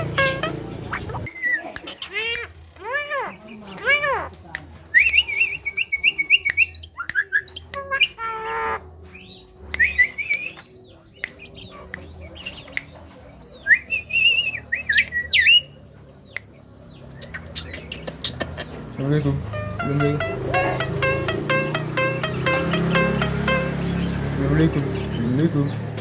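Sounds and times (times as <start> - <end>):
bird harsh squawk: 0.0 - 4.3, 19.5 - 21.7.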